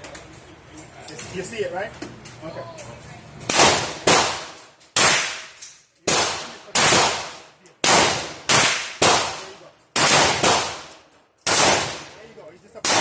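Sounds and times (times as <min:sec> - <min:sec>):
gunshots: 0:03.5 - 0:10.9, 0:11.5 - 0:12.2.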